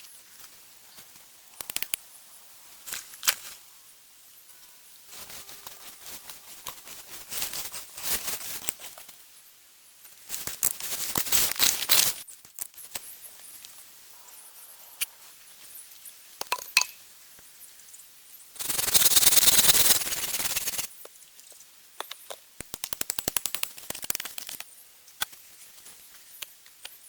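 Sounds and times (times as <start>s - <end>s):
dry rustling and crackling: 10.3s - 13.1s, 18.6s - 20.9s, 22.8s - 26.3s.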